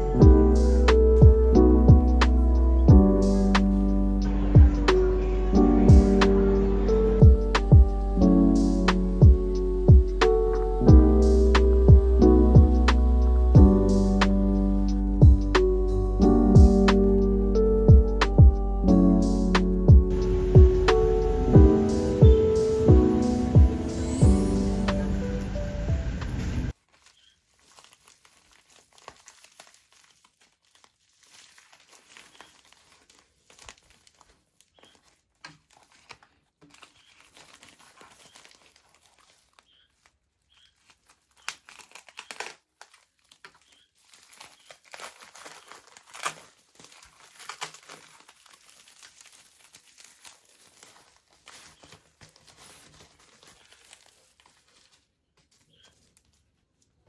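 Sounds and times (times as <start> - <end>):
packaging crinkling and rustling: 0.0 - 18.2, 20.1 - 57.0.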